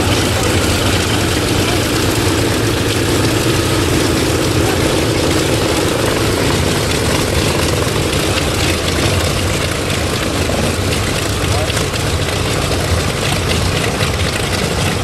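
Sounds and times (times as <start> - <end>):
propeller aircraft engine droning: 0.0 - 15.0.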